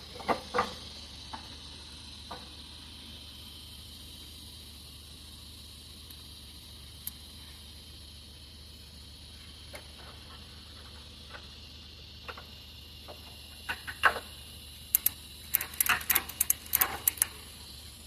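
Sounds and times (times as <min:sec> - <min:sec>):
faint steady hum: 0:00.0 - 0:18.0
sharp clicks and clatters: 0:12.2 - 0:17.8.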